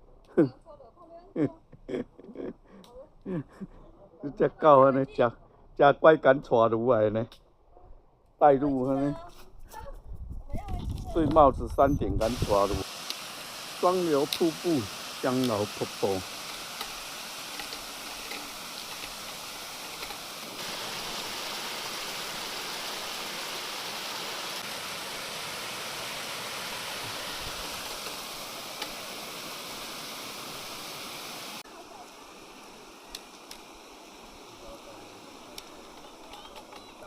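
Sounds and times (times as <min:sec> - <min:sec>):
stream water rushing over rocks: 0:12.2 - 0:37.0.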